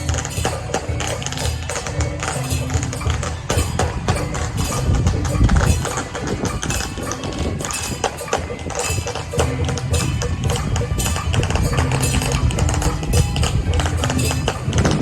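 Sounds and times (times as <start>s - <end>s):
percussion band playing fast: 0.0s - 15.0s.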